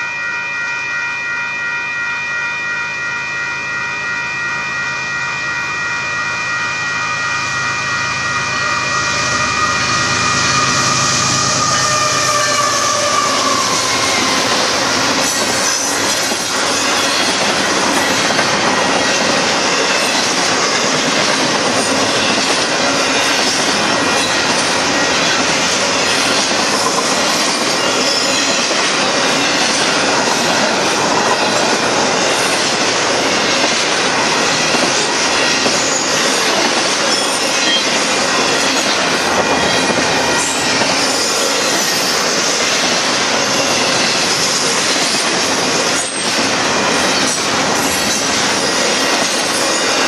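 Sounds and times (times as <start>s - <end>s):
high wheel squeal: 8.1s - 17.4s.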